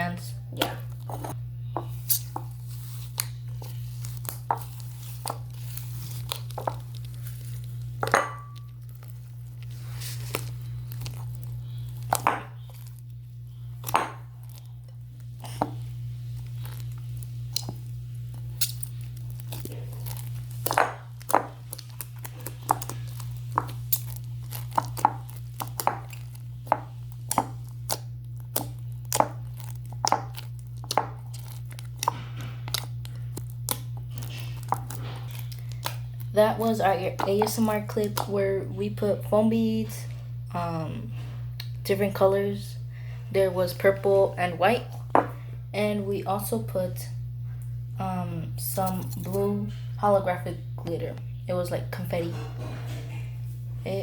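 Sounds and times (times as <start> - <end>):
low electrical hum: 0.0 - 54.0
slime squeezed crackling: 1.9 - 8.0, 8.7 - 38.3.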